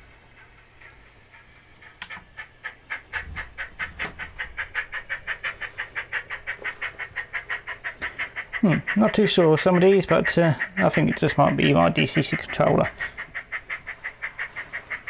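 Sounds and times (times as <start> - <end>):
model steam locomotive chuffs: 0.0 - 15.0.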